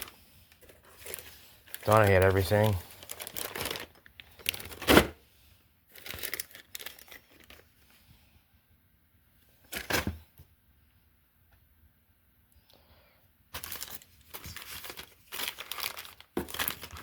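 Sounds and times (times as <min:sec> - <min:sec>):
plastic packaging crinkling: 0:00.0 - 0:05.2, 0:05.9 - 0:07.8, 0:13.5 - 0:17.0.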